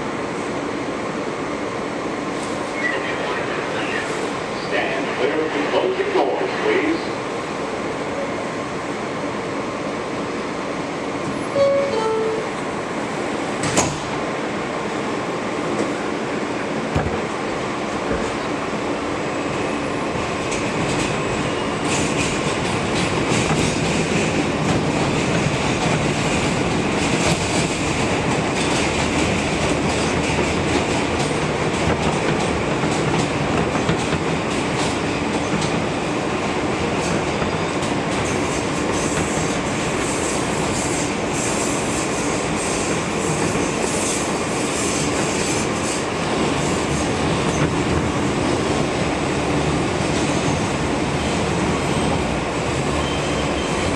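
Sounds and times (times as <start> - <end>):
subway train rumble: 0.0 - 53.9
high wheel squeal: 52.9 - 53.9.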